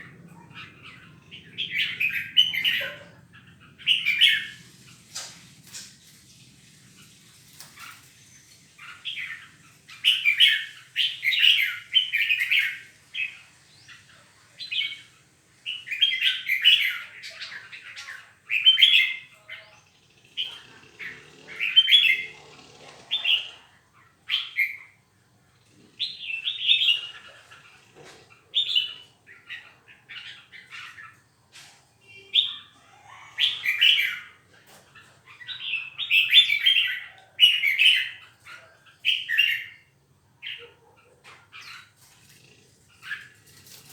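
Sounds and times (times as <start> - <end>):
songbird chattering song: 0.0 - 22.4, 23.1 - 43.9.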